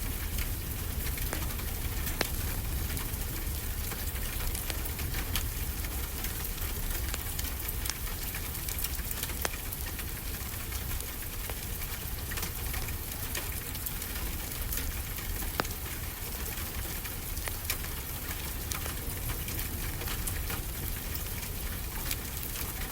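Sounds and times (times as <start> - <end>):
wood fire crackling: 0.0 - 22.9
sharp pops from fire: 1.2 - 3.0.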